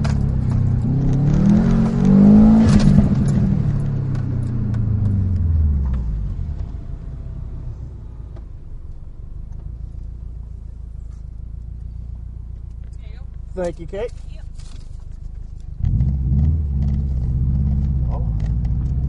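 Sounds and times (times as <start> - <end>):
car engine revving: 0.0 - 10.8, 15.5 - 19.0.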